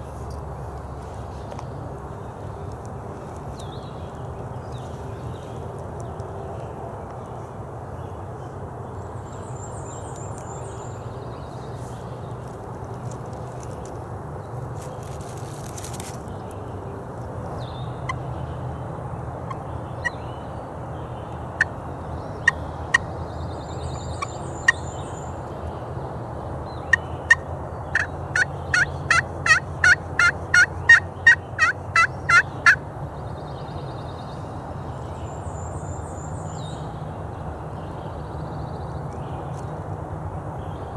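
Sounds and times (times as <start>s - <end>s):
turkey call clucks and yelps: 26.9s - 32.8s.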